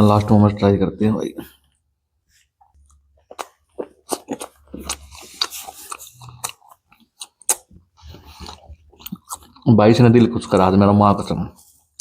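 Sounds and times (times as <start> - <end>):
close chewing: 2.7 - 10.9.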